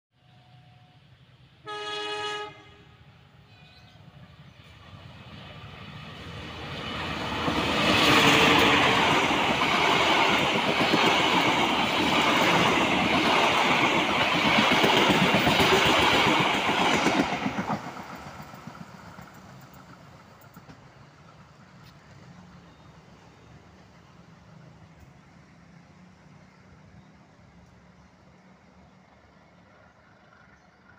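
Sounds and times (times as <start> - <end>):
train horn: 1.6 - 4.0
train wheels on rails: 3.5 - 30.9.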